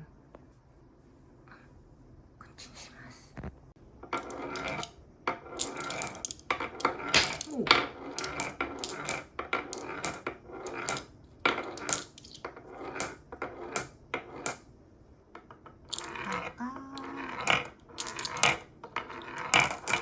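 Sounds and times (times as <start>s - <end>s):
marbles clicking and clattering: 4.0s - 14.6s, 15.4s - 20.0s.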